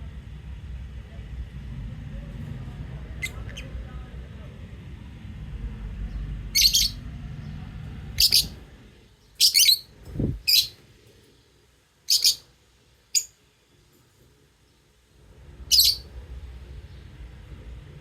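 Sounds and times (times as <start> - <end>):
lovebirds chirping: 3.1 - 3.9, 6.1 - 10.8, 12.1 - 12.5, 13.1 - 13.4, 15.7 - 16.1.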